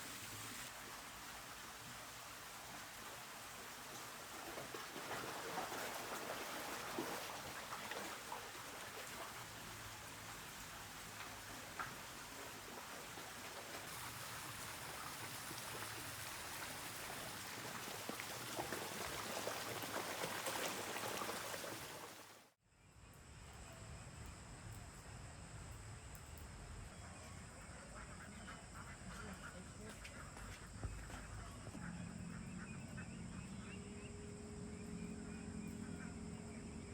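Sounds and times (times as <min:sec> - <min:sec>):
steady rain patter: 0:00.0 - 0:22.6.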